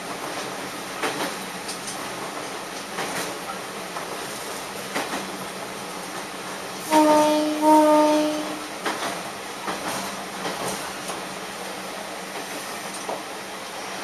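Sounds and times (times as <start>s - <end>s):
railcar horn: 6.8s - 8.7s.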